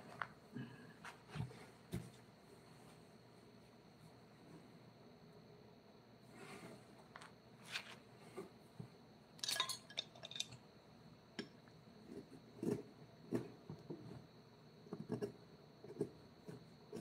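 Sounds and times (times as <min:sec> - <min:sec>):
small hard objects clinking: 0:09.4 - 0:10.6.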